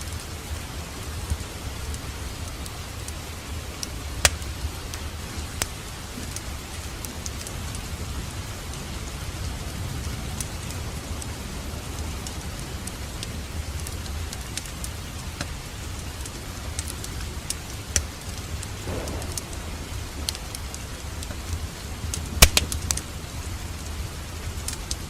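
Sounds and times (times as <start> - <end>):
fire flames rumbling: 0.0 - 25.0
wood fire crackling: 0.0 - 25.0
sharp fire pops: 3.6 - 7.9, 16.2 - 24.0.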